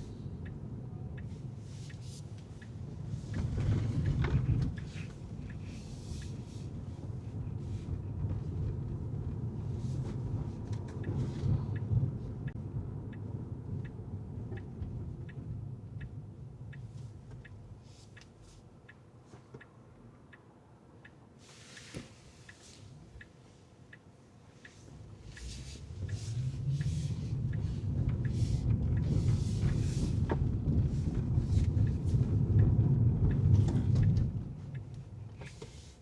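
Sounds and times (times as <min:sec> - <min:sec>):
turn-signal indicator ticking: 0:00.0 - 0:06.8, 0:10.8 - 0:31.2
car road and engine rumble: 0:00.0 - 0:36.0.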